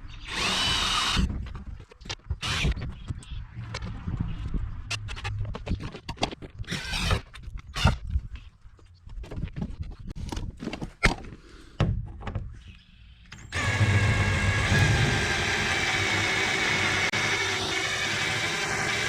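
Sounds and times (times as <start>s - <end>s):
power drill whining: 0.2s - 1.3s, 13.4s - 19.0s.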